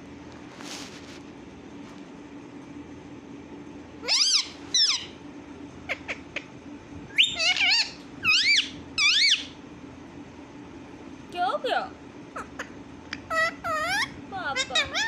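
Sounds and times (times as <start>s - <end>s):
parrot high-pitched calls: 4.0s - 5.2s, 5.9s - 6.5s, 7.1s - 9.6s, 12.3s - 15.0s.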